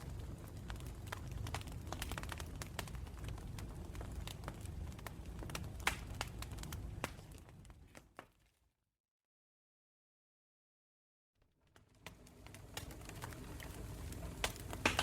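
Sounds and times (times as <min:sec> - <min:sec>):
low rumble of flames: 0:00.0 - 0:08.3, 0:11.6 - 0:15.0
campfire crackling and popping: 0:00.0 - 0:08.4, 0:11.6 - 0:15.0.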